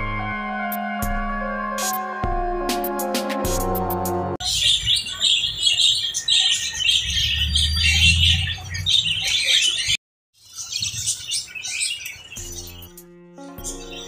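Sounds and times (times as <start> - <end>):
lovebirds chirping and chattering: 4.4 - 13.0, 13.6 - 14.0.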